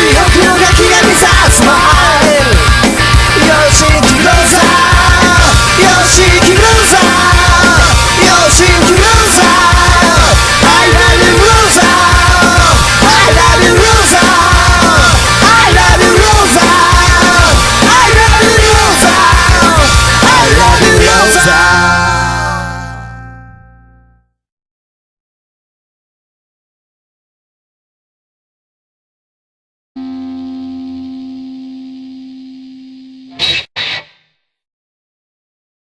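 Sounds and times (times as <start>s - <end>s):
punk rock band music: 0.0s - 24.2s, 30.0s - 34.1s.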